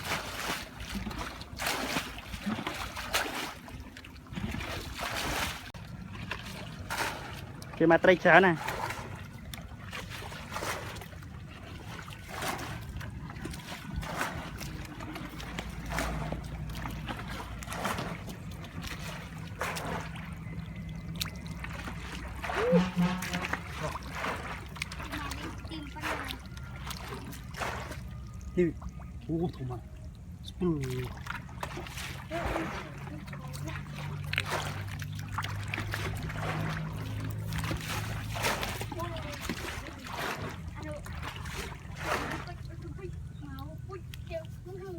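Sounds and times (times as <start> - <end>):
low motor hum: 0.0 - 44.9
shallow water splashing: 0.0 - 44.9.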